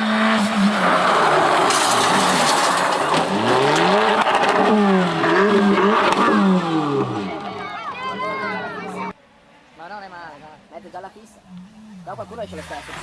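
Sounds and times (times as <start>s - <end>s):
rally car engine at full throttle: 0.0s - 7.6s
tyre and road noise: 0.0s - 13.0s.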